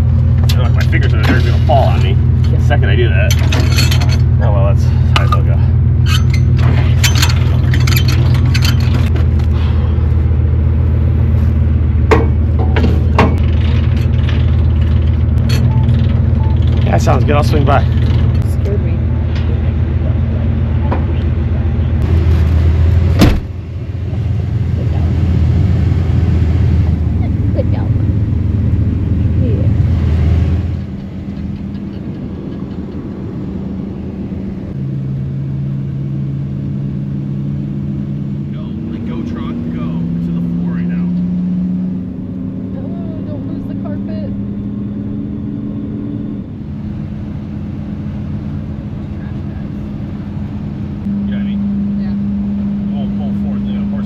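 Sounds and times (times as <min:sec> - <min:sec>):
low steady hum: 0:00.0 - 0:30.0, 0:42.1 - 0:54.0
truck engine idling: 0:00.0 - 0:41.2, 0:46.3 - 0:54.0
metal clanks and rattles: 0:00.2 - 0:09.6, 0:12.0 - 0:19.6
sharp metal knocks: 0:12.1 - 0:16.9.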